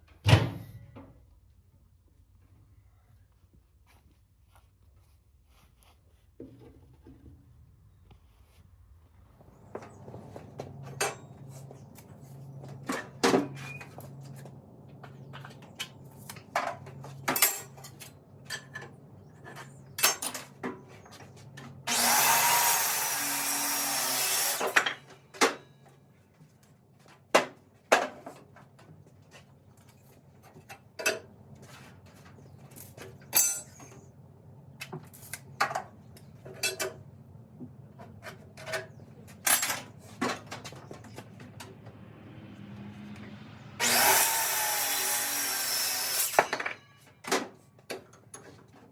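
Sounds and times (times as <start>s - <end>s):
power tool running: 21.8s - 25.0s, 43.8s - 47.0s.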